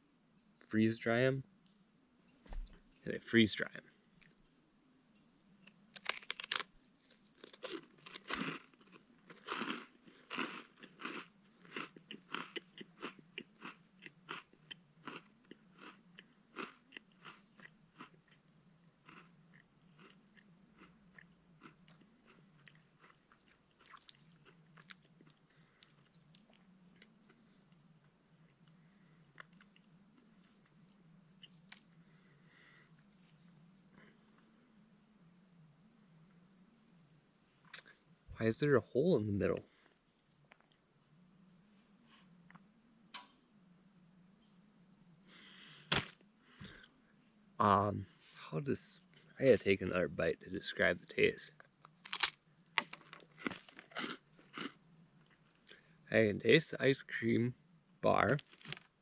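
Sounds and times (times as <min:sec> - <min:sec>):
crunchy food being chewed: 0:05.6 - 0:34.5, 0:37.6 - 0:38.0, 0:51.5 - 0:55.8, 0:58.2 - 0:59.0.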